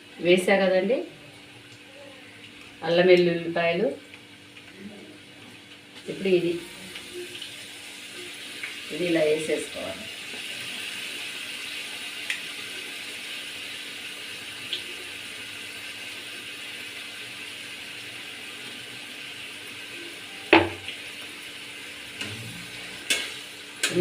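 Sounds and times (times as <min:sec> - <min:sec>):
spices sizzling in hot oil: 0:05.4 - 0:24.0.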